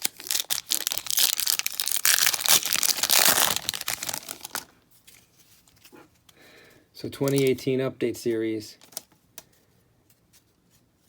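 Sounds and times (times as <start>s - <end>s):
wrapper tearing and crinkling: 0.0s - 4.7s, 8.8s - 9.1s.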